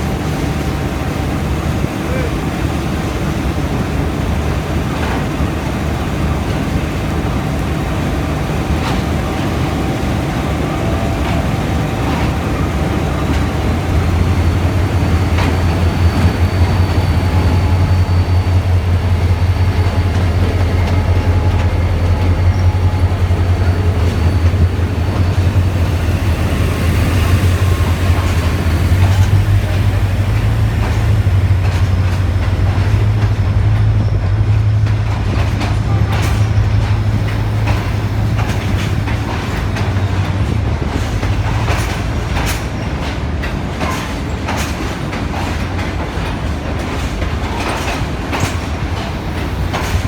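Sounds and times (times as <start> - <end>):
locomotive engine rumble: 0.0 - 50.0.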